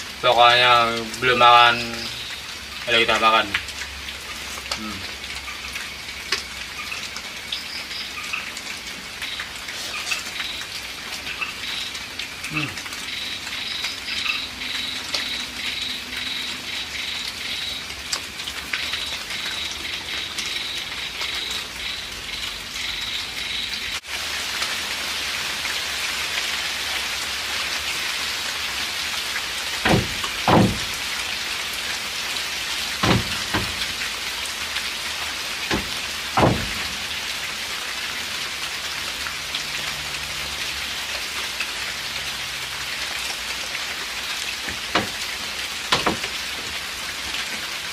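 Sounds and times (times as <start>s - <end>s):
light drizzle falling: 0.0s - 47.9s
short dull knocks: 29.8s - 30.9s, 33.0s - 33.9s, 45.9s - 46.2s.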